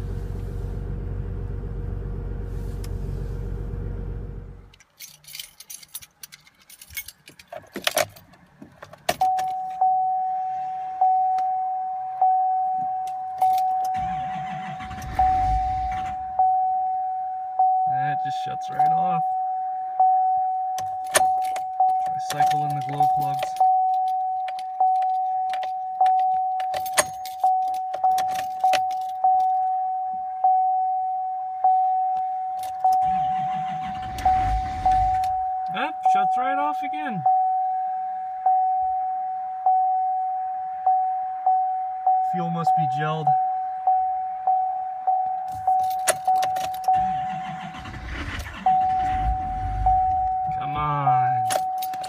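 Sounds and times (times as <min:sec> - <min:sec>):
keys clicking in ignition: 0:04.7 - 0:09.8, 0:13.0 - 0:15.5, 0:20.8 - 0:29.7, 0:45.4 - 0:50.7, 0:51.3 - 0:52.0
dashboard warning chime dinging: 0:09.2 - 0:52.0
diesel engine cranking: 0:13.5 - 0:16.4, 0:32.7 - 0:35.5, 0:45.8 - 0:50.8.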